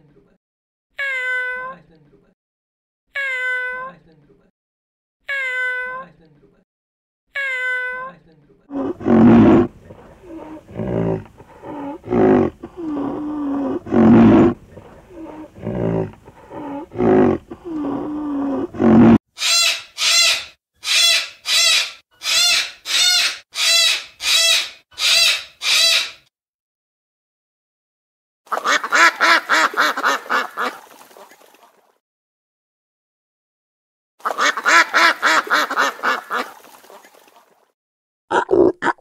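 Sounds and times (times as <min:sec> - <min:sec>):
rhinoceros calls and grunts: 0:08.7 - 0:19.2
cockatoo screeching: 0:18.5 - 0:26.2.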